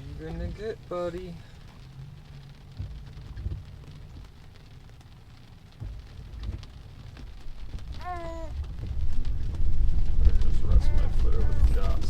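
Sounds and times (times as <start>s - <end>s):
rain on a car roof: 0.0s - 12.0s
steady low rumble: 0.0s - 12.0s.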